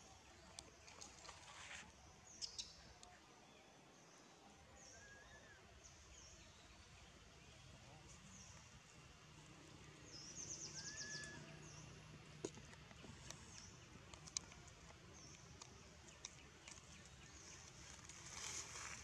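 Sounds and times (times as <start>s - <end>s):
small birds chirping: 2.2s - 3.2s, 4.9s - 19.0s.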